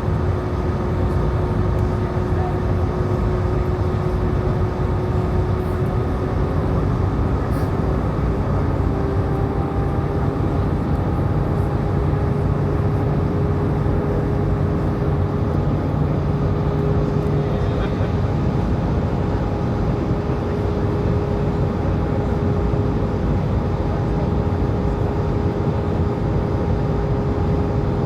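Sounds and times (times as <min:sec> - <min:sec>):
aircraft engine drone: 0:00.0 - 0:28.0
steady whine: 0:00.0 - 0:28.0.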